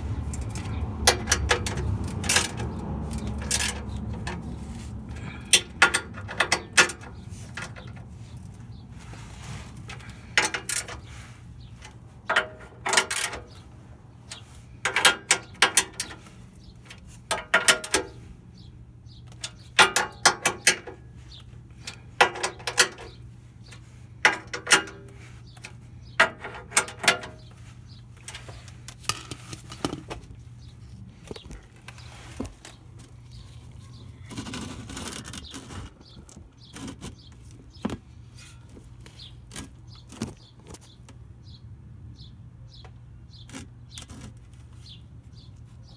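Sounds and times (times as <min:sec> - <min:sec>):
metallic clinking and rattling: 0:00.0 - 0:08.8, 0:09.7 - 0:18.3.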